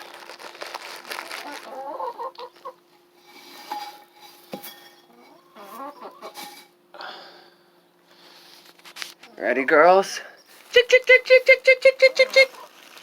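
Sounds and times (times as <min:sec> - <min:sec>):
hens clucking softly: 0:01.4 - 0:02.9, 0:05.1 - 0:06.6
dish clinking: 0:03.2 - 0:06.7.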